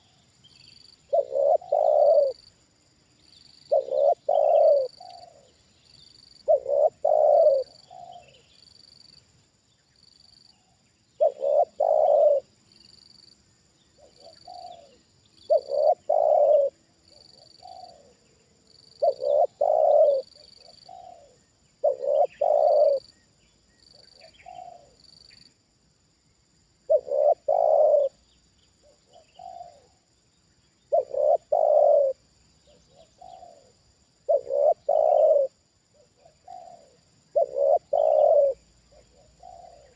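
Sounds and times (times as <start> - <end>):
dove cooing: 1.1 - 2.4, 3.7 - 5.6, 6.4 - 8.4, 10.6 - 12.5, 14.0 - 18.2, 18.9 - 23.2, 23.9 - 25.0, 26.9 - 28.2, 28.8 - 30.0, 30.9 - 39.9.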